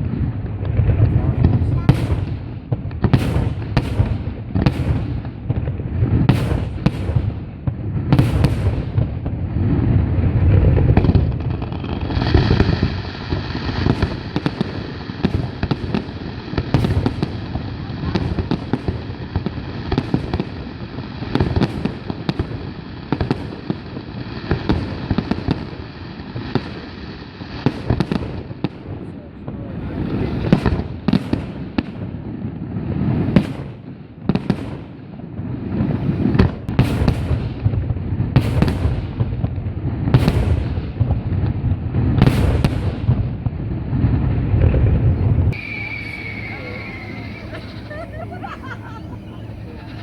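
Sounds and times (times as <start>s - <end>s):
fireworks bangs and booms: 0.0s - 50.0s
fireworks crackling and popping: 0.0s - 50.0s
steady high tone: 45.6s - 49.7s.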